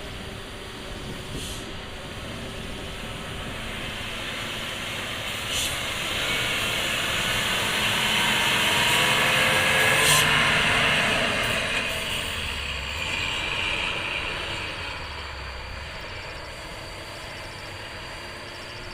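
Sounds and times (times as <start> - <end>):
air hiss: 1.2 - 7.5
truck brakes squealing: 1.3 - 18.9.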